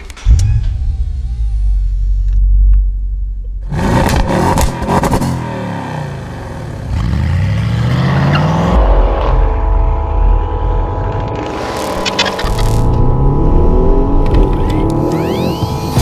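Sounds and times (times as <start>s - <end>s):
car engine accelerating hard: 3.6s - 9.6s.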